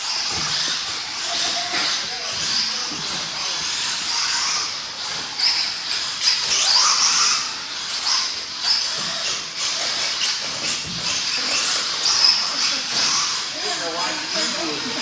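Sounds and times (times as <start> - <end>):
rc truck motors whining: 0.0 - 15.0.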